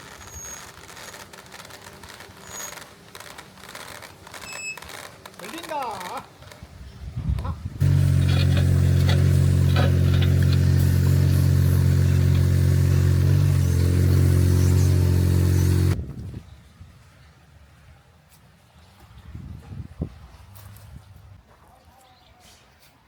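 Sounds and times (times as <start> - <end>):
diesel engine running: 7.8 - 16.0.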